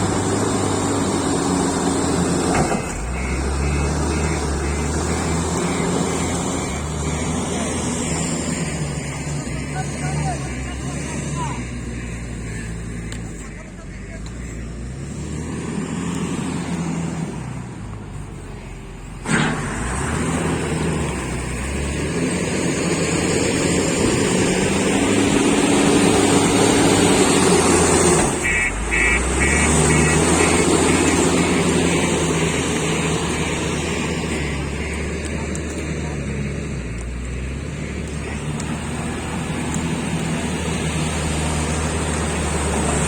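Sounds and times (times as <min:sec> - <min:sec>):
heavy diesel machinery running: 0:00.0 - 0:43.0
high reversing beeps: 0:02.8 - 0:13.0.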